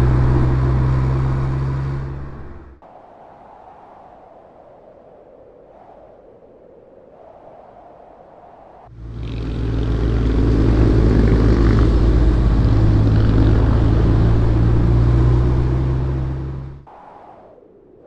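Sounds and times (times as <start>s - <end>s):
car engine running: 0.0s - 2.8s, 8.9s - 16.9s
wind and road noise: 0.0s - 18.0s.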